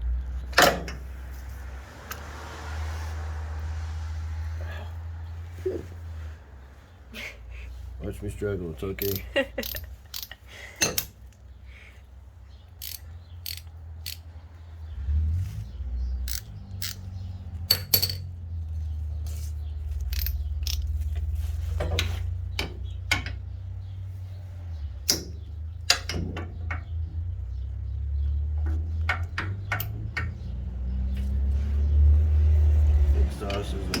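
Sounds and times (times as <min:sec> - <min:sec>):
ratchet metallic clicks: 0:09.0 - 0:11.2, 0:12.8 - 0:14.3, 0:16.2 - 0:17.1, 0:20.0 - 0:21.0.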